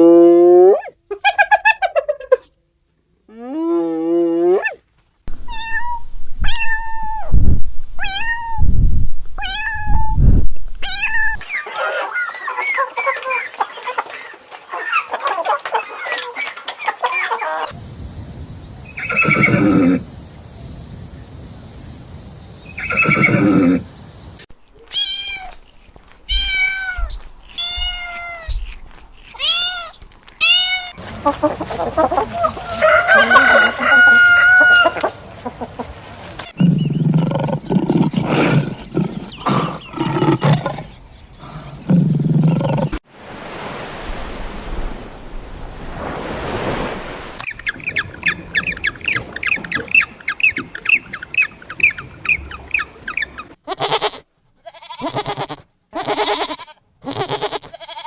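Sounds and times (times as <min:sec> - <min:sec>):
animal cries: 0:19.0 - 0:20.0, 0:22.8 - 0:23.9, 0:53.6 - 0:58.0
long animal calls: 0:19.0 - 0:20.1, 0:22.8 - 0:24.0.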